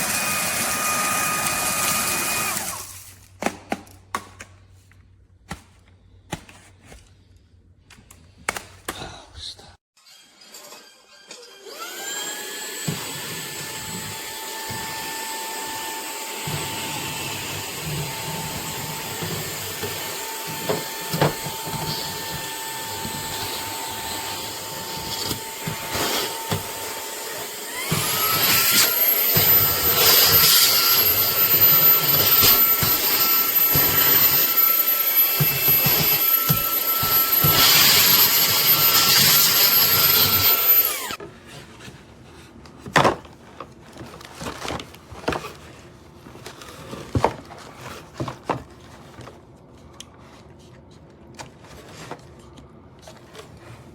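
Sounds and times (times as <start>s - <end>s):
handheld vacuum motor whine: 0.0s - 3.1s, 10.0s - 41.2s.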